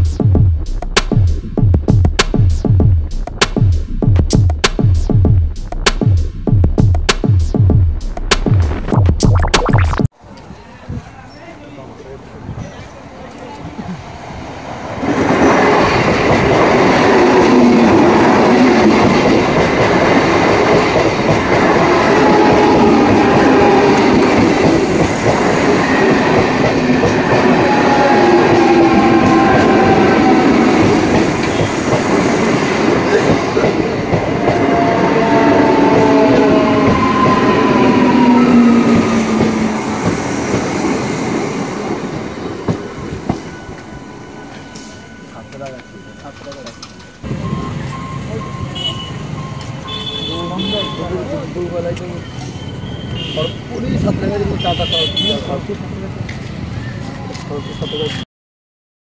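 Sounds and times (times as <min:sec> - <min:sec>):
train rumbling rush: 0:10.3 - 0:58.2
wheels squealing on rails: 0:21.4 - 0:42.0, 0:42.6 - 0:58.2.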